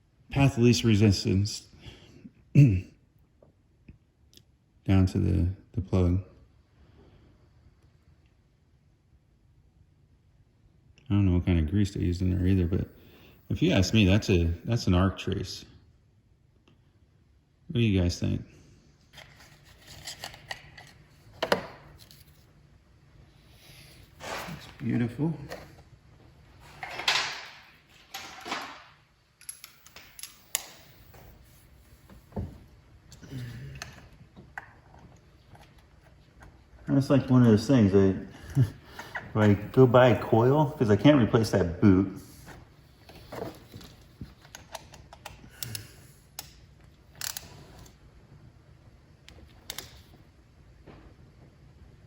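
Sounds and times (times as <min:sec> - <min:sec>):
small parts clicking and tapping: 0:29.4 - 0:31.1, 0:44.4 - 0:47.6.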